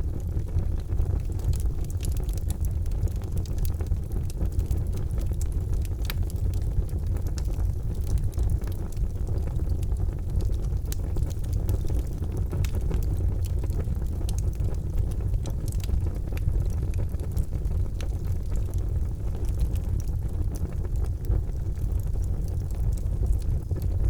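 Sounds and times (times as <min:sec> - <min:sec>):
charcoal fire crackling: 0:00.0 - 0:24.0.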